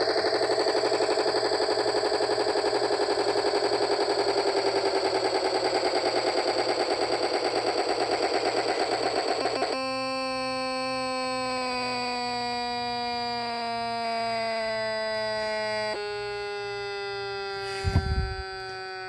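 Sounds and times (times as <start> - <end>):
steady electronic buzz tone: 3.4 - 19.0
rapid electronic stuttering pulse: 17.7 - 18.6.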